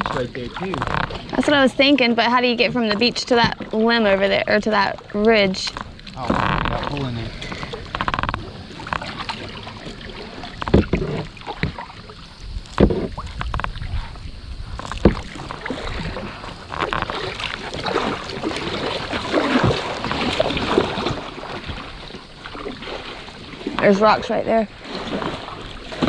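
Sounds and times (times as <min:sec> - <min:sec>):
paddle splashing in river: 0:00.0 - 0:26.0
knocks on plastic kayak hull: 0:10.6 - 0:11.8.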